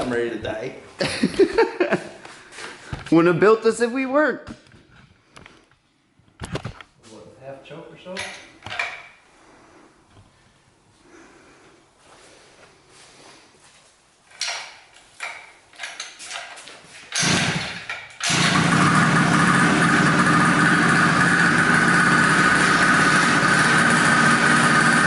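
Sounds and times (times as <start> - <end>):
two-stroke engine starting and running: 17.2 - 25.0.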